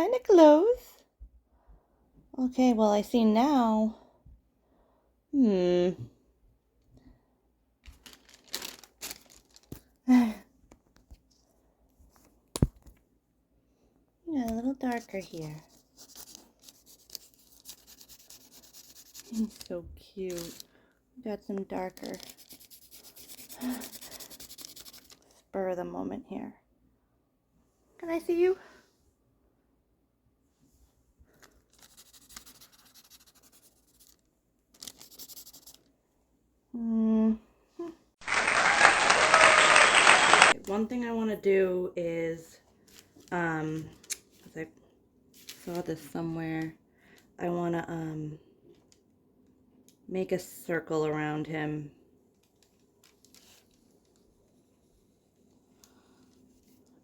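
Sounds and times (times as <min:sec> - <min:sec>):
paper rustling and crinkling: 0:07.8 - 0:10.0, 0:15.0 - 0:20.7, 0:21.5 - 0:25.4, 0:31.3 - 0:35.9, 0:38.2 - 0:40.6, 0:45.3 - 0:45.8, 0:52.4 - 0:54.6
pencil scratching on paper: 0:16.0 - 0:19.4, 0:22.2 - 0:25.2, 0:31.9 - 0:34.1, 0:35.0 - 0:35.8.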